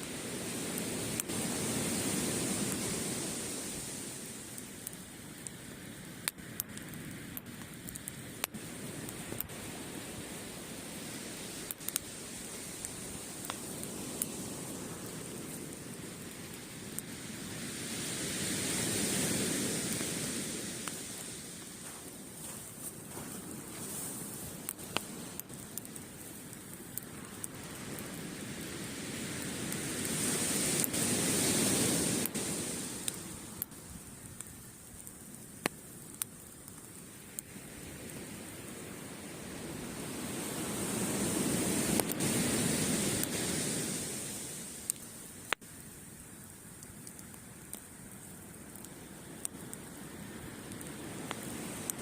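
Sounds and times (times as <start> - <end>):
waves breaking: 0.0 - 6.1, 7.8 - 34.0, 36.8 - 45.3, 47.1 - 52.0
campfire crackling: 0.0 - 52.0.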